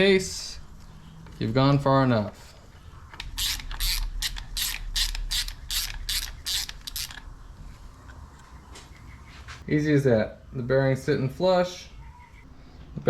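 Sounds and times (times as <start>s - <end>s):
ratchet wrench clicking: 3.2s - 7.3s.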